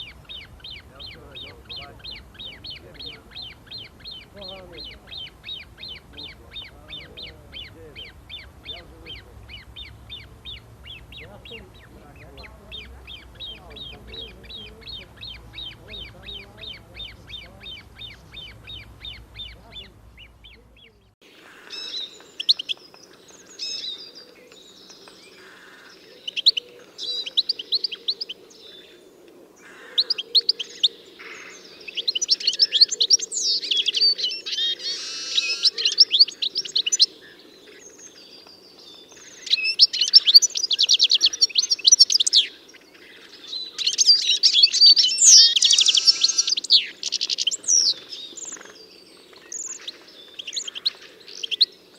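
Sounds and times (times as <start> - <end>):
songbirds singing: 0.0 - 51.9.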